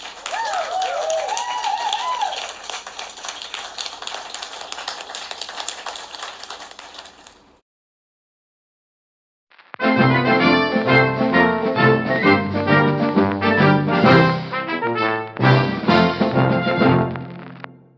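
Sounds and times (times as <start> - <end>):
people cheering: 0.0 - 7.2
crowd applauding: 0.0 - 7.6.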